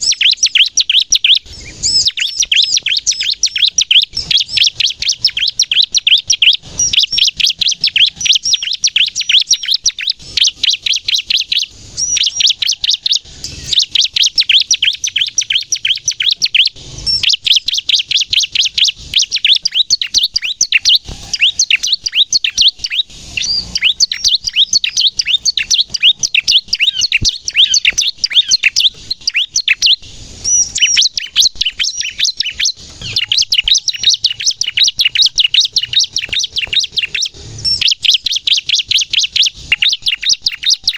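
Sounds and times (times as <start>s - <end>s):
bird chirping rapidly: 0.0s - 40.9s.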